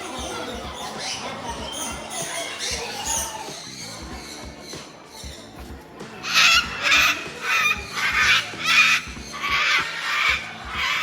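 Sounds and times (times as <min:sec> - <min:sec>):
background music: 0:00.0 - 0:11.0
parrot screeching: 0:00.5 - 0:03.9, 0:06.2 - 0:11.0.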